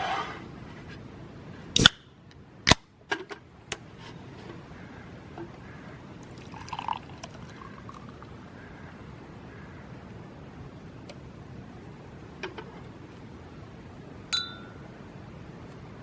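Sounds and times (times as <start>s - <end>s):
liquid being poured: 6.2s - 8.3s.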